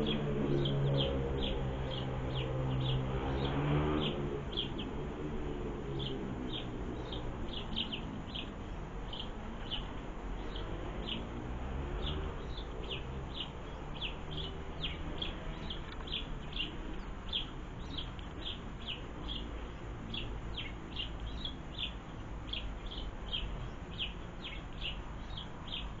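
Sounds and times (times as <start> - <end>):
small bird chirping: 12.0 - 26.0.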